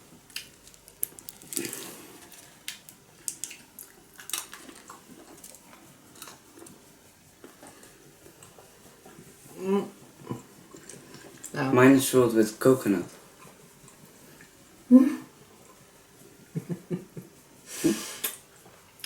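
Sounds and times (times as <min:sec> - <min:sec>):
wrappers crinkling: 0:00.2 - 0:05.6
person eating: 0:00.2 - 0:06.8.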